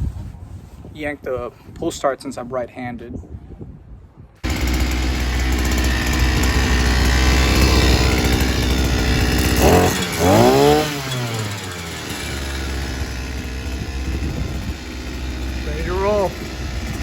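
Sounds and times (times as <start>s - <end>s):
outboard engine running: 4.4s - 17.0s.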